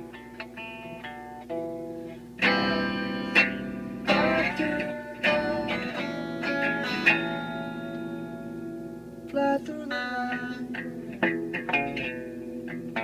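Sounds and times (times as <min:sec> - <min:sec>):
guitar chords ringing: 0:00.0 - 0:13.0
plucked guitar notes: 0:00.0 - 0:13.0.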